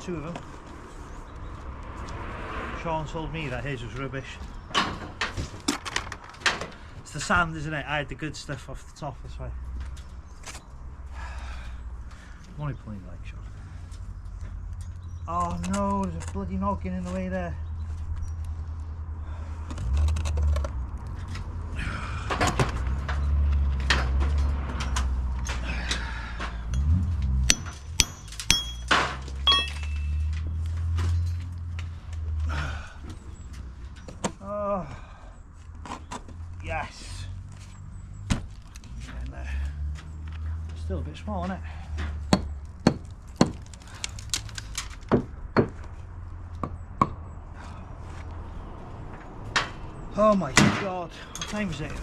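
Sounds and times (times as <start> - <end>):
metal tapping on brick: 27.5 - 30.1.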